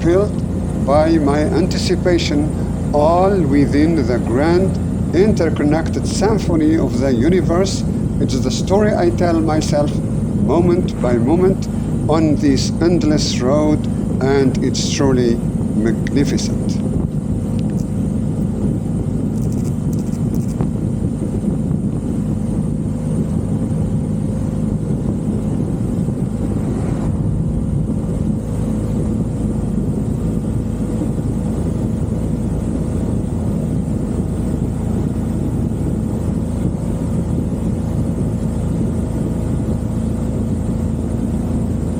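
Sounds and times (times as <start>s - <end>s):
motorcycle engine droning: 0.0s - 41.9s.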